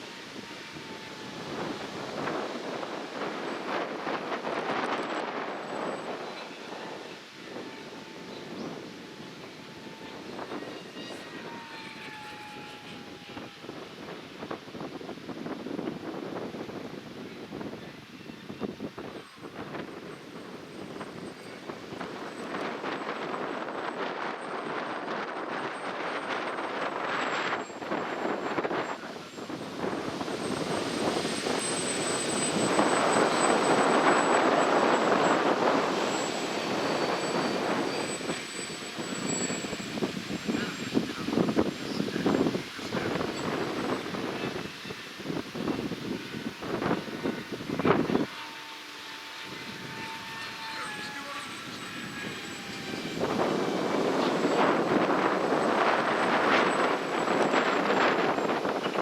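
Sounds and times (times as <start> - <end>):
gusty wind buffeting microphone: 0.0 - 59.0
model airplane motor whine: 0.0 - 59.0.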